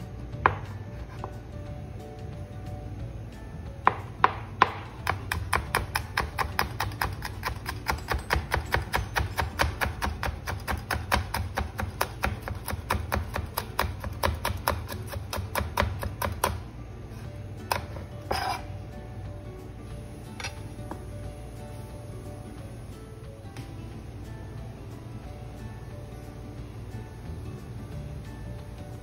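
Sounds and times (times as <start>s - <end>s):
knocks on cutting board: 0.4s - 0.7s
knife chopping on cutting board: 0.4s - 1.4s, 3.9s - 16.6s, 17.6s - 18.7s.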